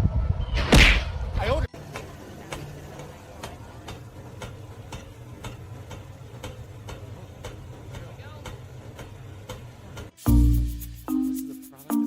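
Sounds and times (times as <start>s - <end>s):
steady ticking clicks: 2.5s - 12.0s.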